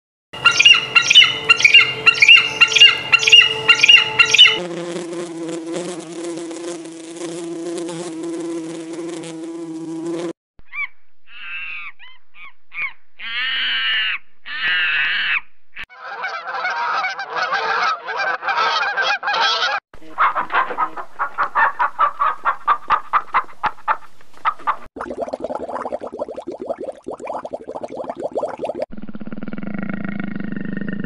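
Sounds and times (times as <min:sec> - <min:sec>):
birds chattering: 0:00.4 - 0:04.6
waterfowl honking: 0:00.4 - 0:04.6, 0:12.8 - 0:24.8
flying insect buzzing: 0:00.5 - 0:10.4.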